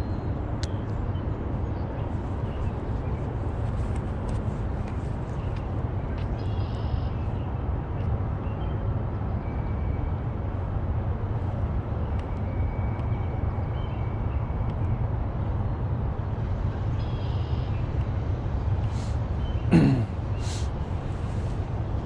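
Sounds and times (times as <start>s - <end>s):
low outdoor rumble: 10.2s - 22.0s.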